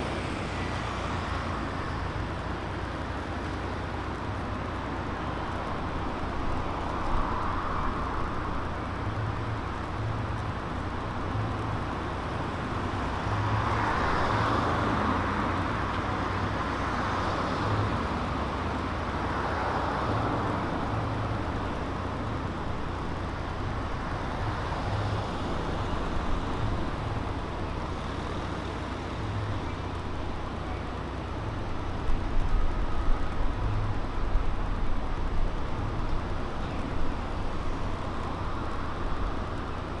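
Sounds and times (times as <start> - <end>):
cars passing: 0.0 - 40.0
steady traffic hum: 0.0 - 40.0.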